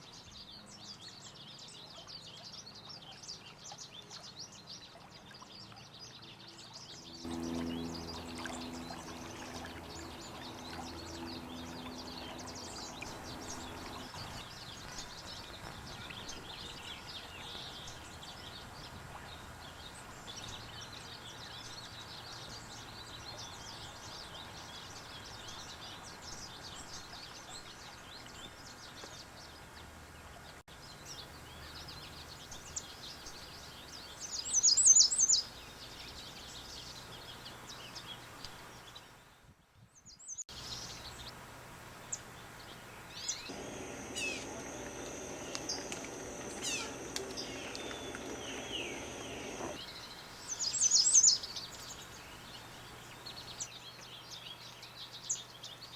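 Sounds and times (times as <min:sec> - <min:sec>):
outdoor background noise: 0:00.0 - 0:55.9
birds chirping and singing: 0:05.7 - 0:39.3, 0:42.1 - 0:55.9
steady high tone: 0:07.3 - 0:14.2.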